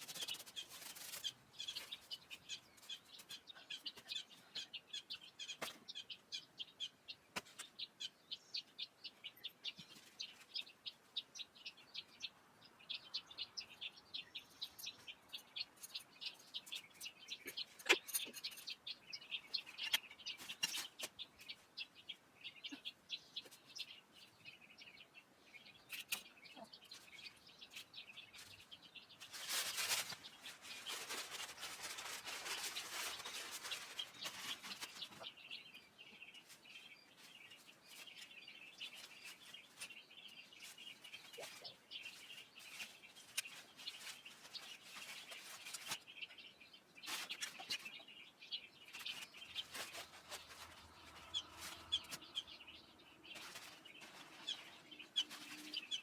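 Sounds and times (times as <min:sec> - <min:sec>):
rustling noise: 0:00.0 - 0:03.4, 0:26.9 - 0:35.4, 0:36.3 - 0:46.4, 0:47.0 - 0:48.0, 0:48.8 - 0:56.0
small birds chirping: 0:00.0 - 0:56.0.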